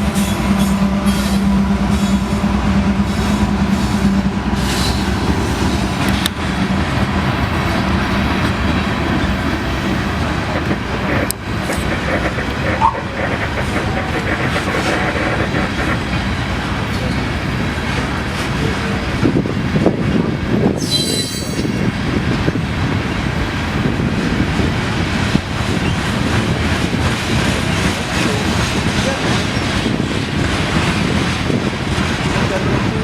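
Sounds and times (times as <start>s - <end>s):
train wheels clattering on rails: 0.0s - 33.0s
high-pitched wheel squeal: 20.8s - 21.6s.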